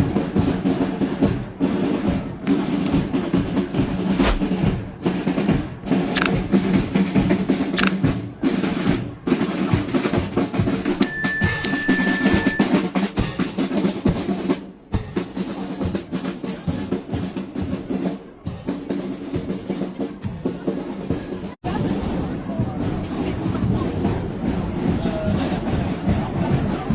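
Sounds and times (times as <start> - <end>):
snare drum rolls: 0.1 - 11.0
bass drum beats: 3.7 - 5.0
high steady tone: 11.0 - 12.8.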